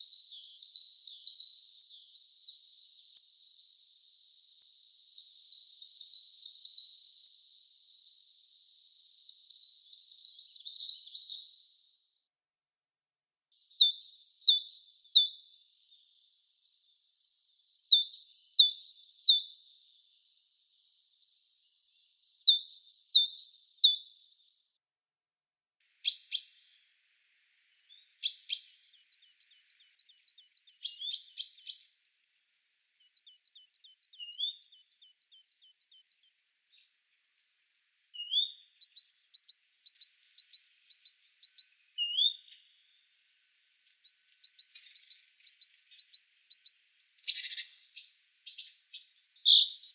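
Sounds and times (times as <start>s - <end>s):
songbird song phrase: 0.0s - 49.9s
sharp bird calls: 37.8s - 42.9s, 43.8s - 49.9s.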